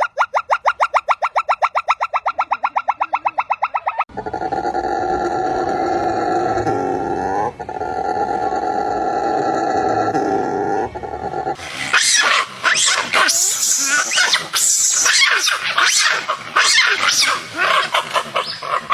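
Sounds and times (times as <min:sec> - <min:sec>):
monkey squealing and chirping: 0:00.0 - 0:04.1, 0:11.6 - 0:18.9
monkey growling: 0:02.2 - 0:18.9.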